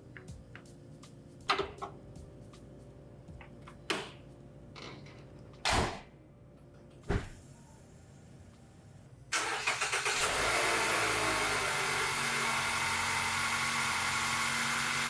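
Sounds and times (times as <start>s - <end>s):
heavy door thump: 7.1s - 7.4s
car engine starting: 9.3s - 15.0s.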